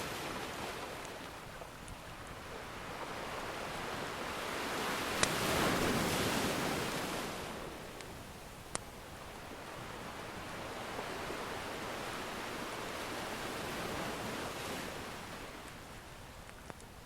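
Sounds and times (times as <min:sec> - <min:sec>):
ocean wave washing in: 0:00.0 - 0:01.5, 0:02.3 - 0:07.9.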